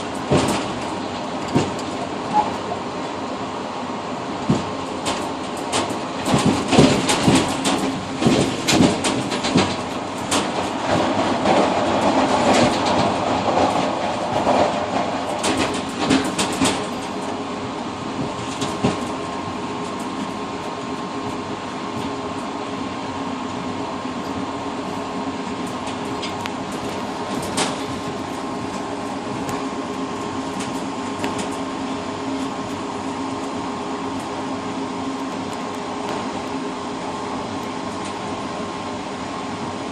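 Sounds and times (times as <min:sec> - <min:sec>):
train wheels clattering over joints: 0:00.0 - 0:02.8, 0:04.4 - 0:22.3, 0:25.5 - 0:34.3
train rumble with hum: 0:00.0 - 0:39.9.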